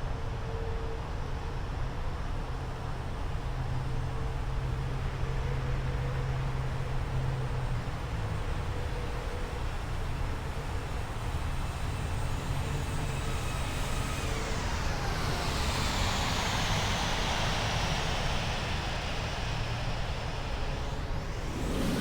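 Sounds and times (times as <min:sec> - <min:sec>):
jet airliner passing by: 0:13.8 - 0:22.0.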